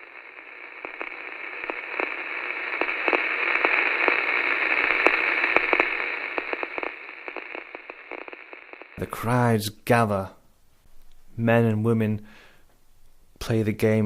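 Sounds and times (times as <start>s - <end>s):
static crackles and clicks: 0.0s - 9.4s
radio static hiss: 0.0s - 9.5s.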